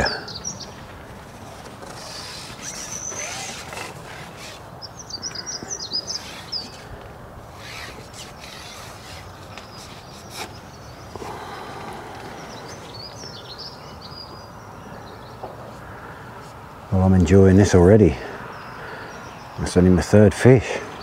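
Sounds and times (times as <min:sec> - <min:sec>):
songbird twittering: 0:00.0 - 0:01.1, 0:01.8 - 0:07.0, 0:07.6 - 0:16.2, 0:17.0 - 0:20.2
steady outdoor hiss: 0:00.0 - 0:21.0.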